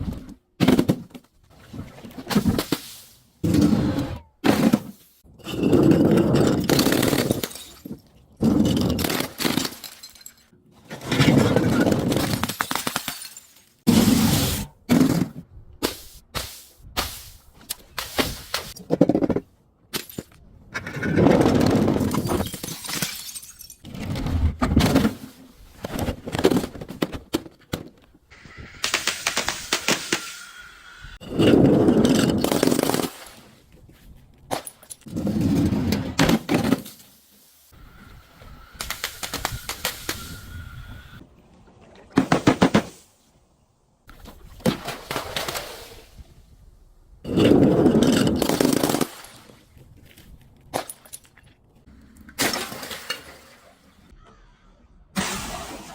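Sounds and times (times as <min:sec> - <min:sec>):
glass bottles breaking: 0:05.4 - 0:08.0, 0:08.6 - 0:10.5, 0:11.3 - 0:13.8, 0:22.0 - 0:23.8.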